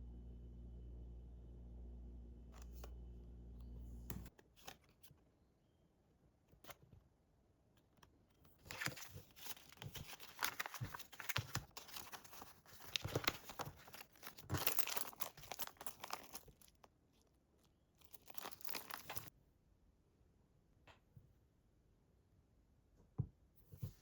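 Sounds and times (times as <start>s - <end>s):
crinkly material crumpling: 8.6s - 19.3s.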